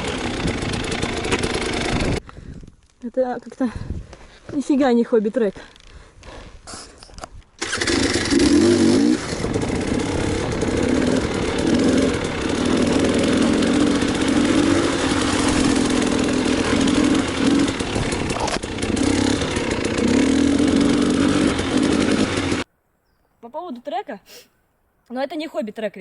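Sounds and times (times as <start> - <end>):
motorcycle engine revving: 0.0 - 2.2, 7.6 - 22.7.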